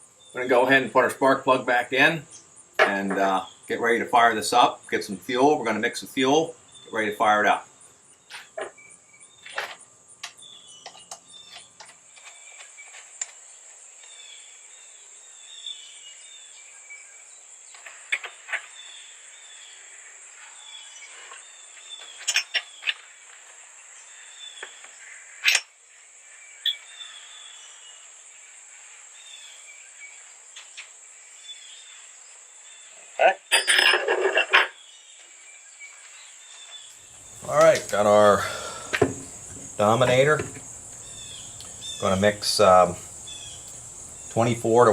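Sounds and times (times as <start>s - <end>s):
birds chirping: 0.0s - 25.6s, 26.2s - 44.9s.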